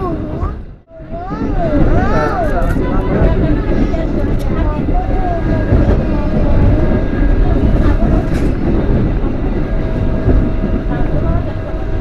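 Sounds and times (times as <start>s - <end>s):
train rumbling inside carriage: 0.0s - 12.0s.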